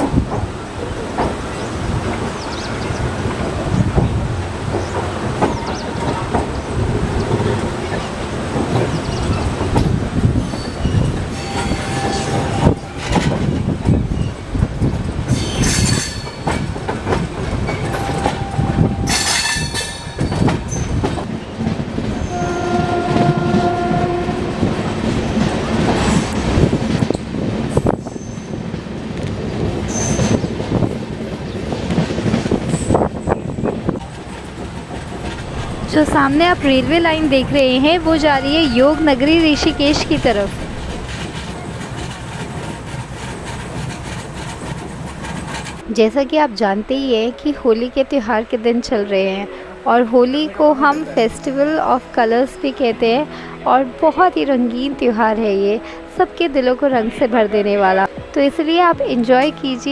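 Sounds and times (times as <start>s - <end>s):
train wheels rumbling and clattering: 0.0s - 53.3s
train horn: 22.2s - 25.0s, 38.2s - 40.5s.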